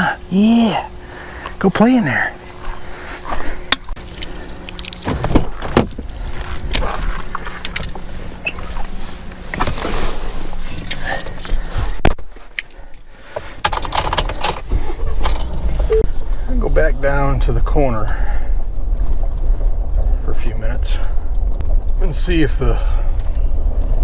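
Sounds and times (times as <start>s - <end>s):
microphone handling rumble: 2.3s - 12.5s, 14.6s - 24.0s
light metallic jingling: 4.0s - 6.6s, 14.2s - 16.0s.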